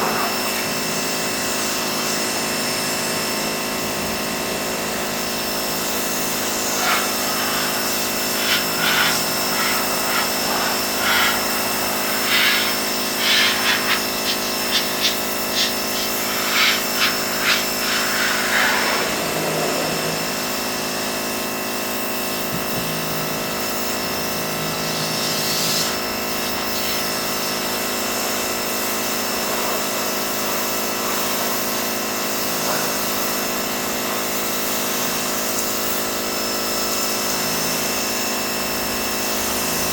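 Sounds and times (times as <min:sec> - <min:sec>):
pressure washer running: 0:00.0 - 0:39.9
hissy spray bursts: 0:05.6 - 0:20.5, 0:24.7 - 0:28.4, 0:29.0 - 0:33.7.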